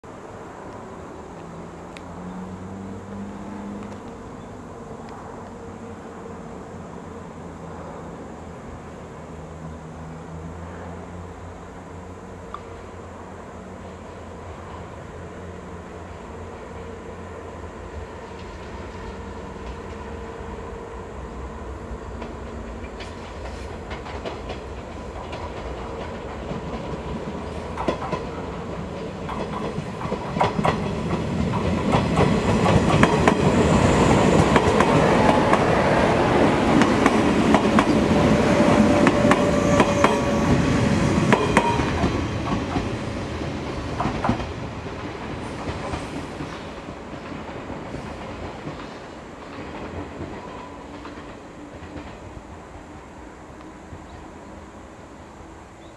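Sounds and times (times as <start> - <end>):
electric train passing: 0.0 - 55.9
wheels clacking over rail joints: 22.0 - 52.6.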